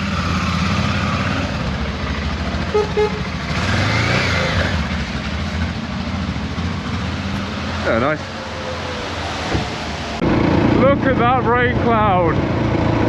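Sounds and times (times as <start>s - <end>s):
motorcycle engine running: 0.0s - 8.2s
short horn beeps: 2.7s - 3.3s.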